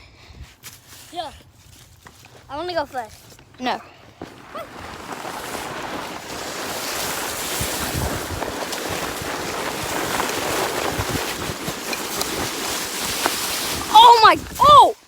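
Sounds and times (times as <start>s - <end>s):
sled scraping on snow: 0.9s - 15.0s
wind buffeting microphone: 4.2s - 15.0s.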